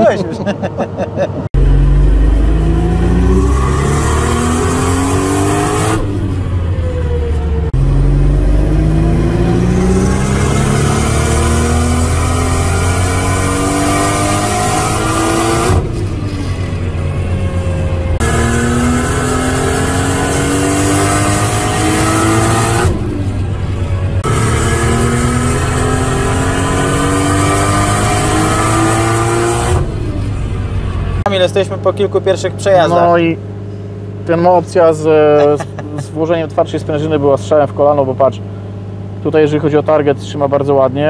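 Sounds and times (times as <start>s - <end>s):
turbocharged engine revving on dyno: 1.6s - 16.4s, 17.2s - 23.4s, 24.2s - 30.5s.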